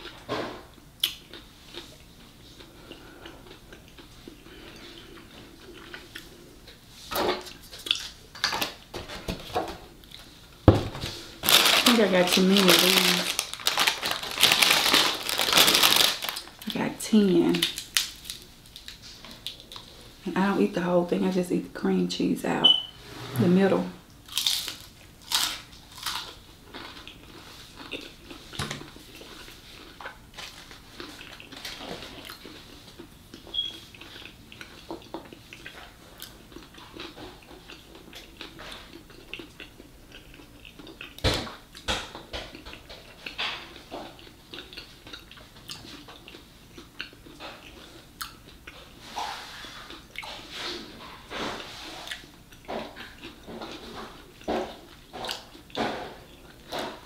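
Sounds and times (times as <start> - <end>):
chewing and wet mouth smacks: 1.0 - 2.0, 31.0 - 48.9, 49.9 - 50.4, 52.0 - 56.6.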